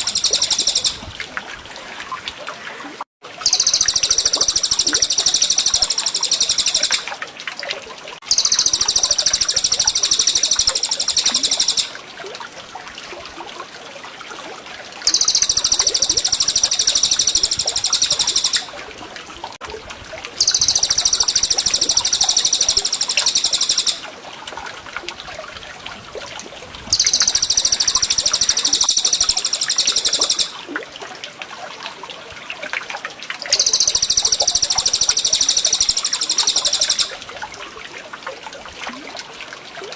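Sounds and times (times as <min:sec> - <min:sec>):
songbird high rapid trill: 0:00.0 - 0:01.0, 0:03.4 - 0:07.1, 0:08.3 - 0:12.0, 0:15.1 - 0:18.7, 0:20.4 - 0:24.1, 0:26.9 - 0:30.6, 0:33.5 - 0:37.2
trickling water: 0:00.0 - 0:39.9.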